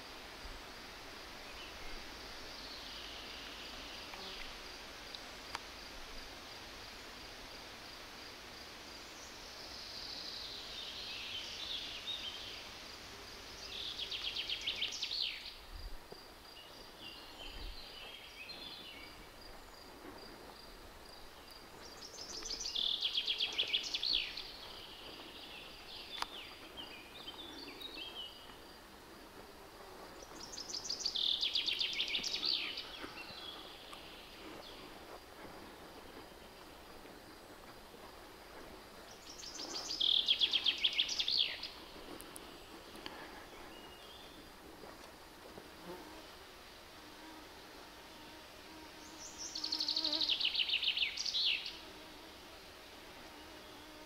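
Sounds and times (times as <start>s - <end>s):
quiet bird chirps: 13.4s - 28.8s, 30.2s - 37.6s, 39.0s - 44.6s, 49.1s - 51.9s.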